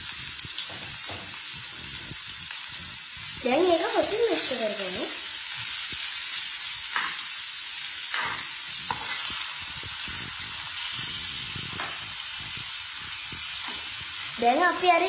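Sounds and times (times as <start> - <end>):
vegetables sizzling in oil: 0.0 - 15.0
metal spoon scraping pan: 8.1 - 9.4.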